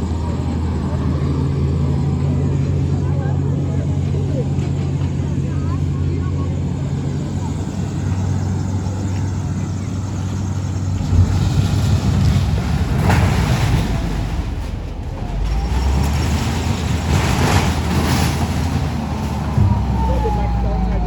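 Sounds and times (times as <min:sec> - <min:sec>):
heavy engine running: 0:00.0 - 0:21.0
rushing noise: 0:10.2 - 0:21.0.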